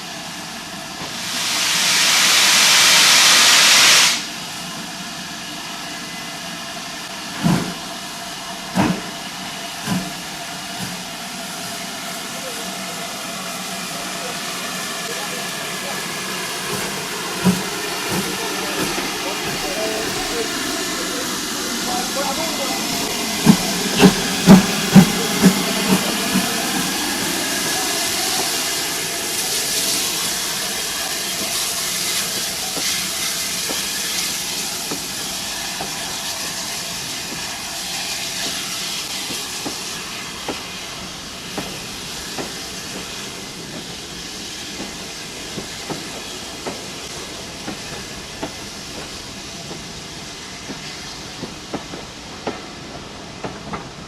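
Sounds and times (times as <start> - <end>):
steam hissing: 0.0 - 54.0
steam locomotive exhaust beats: 0.0 - 54.0
train wheels clicking over rail joints: 8.7 - 11.2, 16.1 - 30.0, 41.5 - 54.0.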